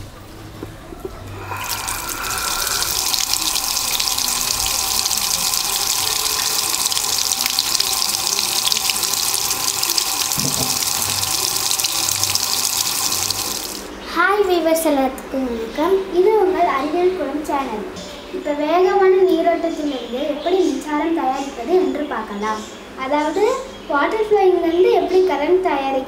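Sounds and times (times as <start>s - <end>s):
tap water splashing on paddle wheel: 3.0s - 13.8s.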